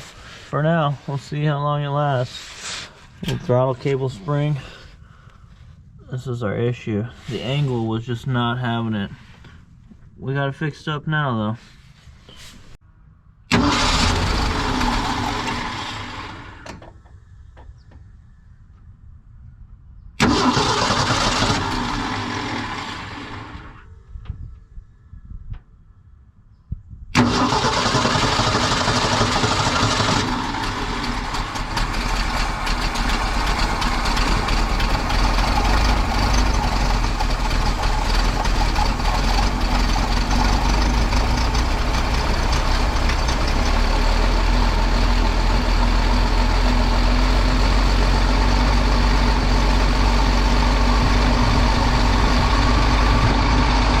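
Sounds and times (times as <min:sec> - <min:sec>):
truck engine starting and idling: 0:13.5 - 0:17.2, 0:20.2 - 0:24.0, 0:27.1 - 0:54.0.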